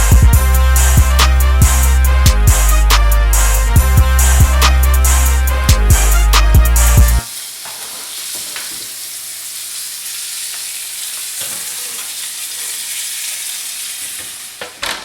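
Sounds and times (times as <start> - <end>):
loud background music: 0.0 - 7.2
chicken sizzling in a skillet: 7.2 - 14.9.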